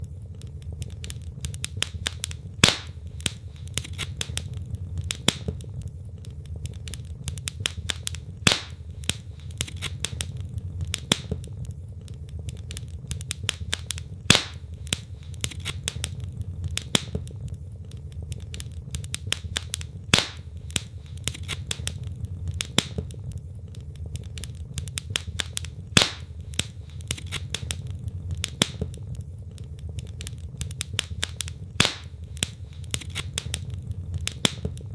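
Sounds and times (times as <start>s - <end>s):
logs crackling in fireplace: 0.0s - 34.9s
low rumble of fire: 0.0s - 34.9s
loud fire pop: 1.7s - 5.7s, 7.6s - 11.5s, 13.3s - 17.4s, 19.2s - 22.0s, 25.2s - 29.0s, 30.9s - 34.9s.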